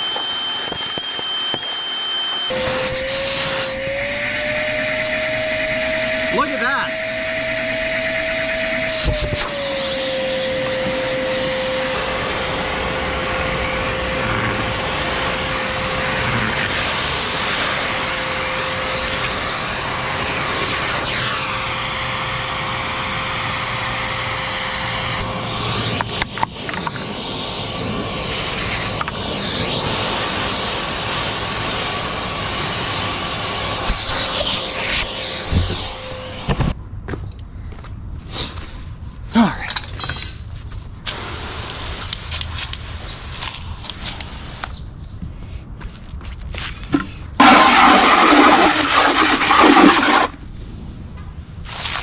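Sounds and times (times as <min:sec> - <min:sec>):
shop vacuum whining: 0:00.0 - 0:36.8, 0:47.0 - 0:50.4.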